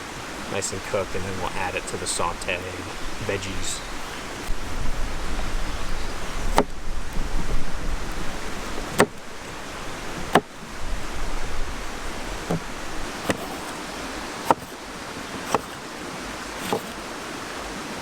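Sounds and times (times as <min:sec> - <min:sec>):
wind rumbling on microphone: 0:00.0 - 0:18.0
sharp knocks: 0:08.9 - 0:09.2, 0:10.2 - 0:10.5, 0:14.4 - 0:14.8.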